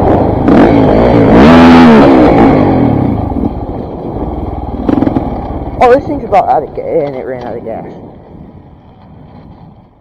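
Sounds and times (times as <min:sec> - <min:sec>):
motorcycle engine revving: 0:00.0 - 0:06.4.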